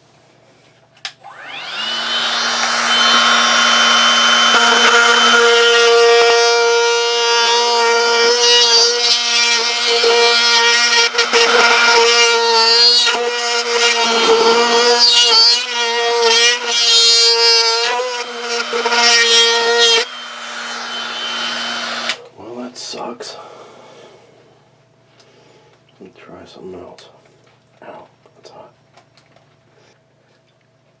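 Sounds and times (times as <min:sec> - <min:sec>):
rotary tool cutting plywood: 0:01.3 - 0:22.2.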